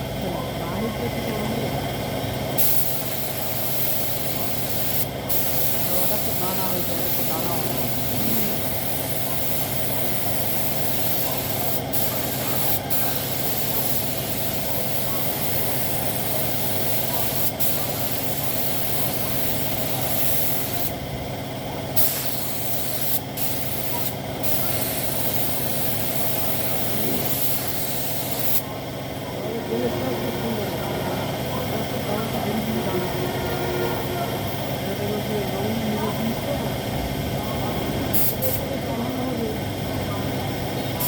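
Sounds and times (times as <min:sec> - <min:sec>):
steady machine hum: 0:00.0 - 0:41.0
spray gun hissing: 0:02.6 - 0:21.0, 0:22.0 - 0:28.7, 0:38.1 - 0:38.7.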